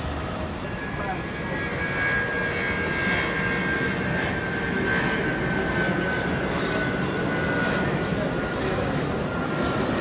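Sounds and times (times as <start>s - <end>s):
jet engines whining: 0.0s - 10.0s.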